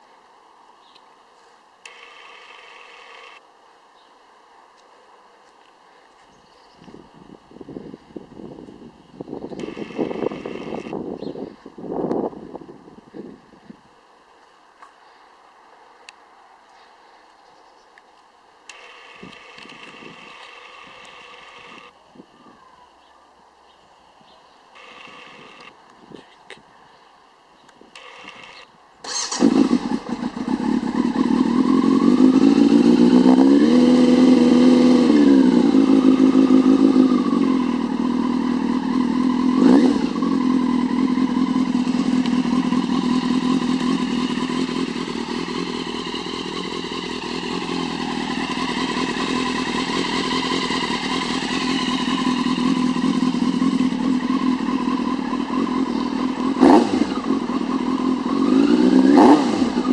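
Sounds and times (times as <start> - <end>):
motorcycle engine idling and revving: 1.8 - 3.4, 7.1 - 13.5, 18.7 - 22.0, 24.8 - 25.8, 27.9 - 59.9.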